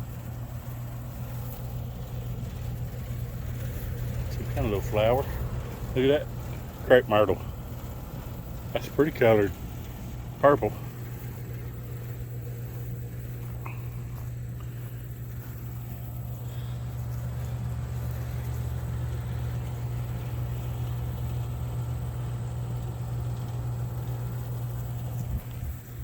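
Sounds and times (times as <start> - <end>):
low engine-like hum: 0.0 - 26.0.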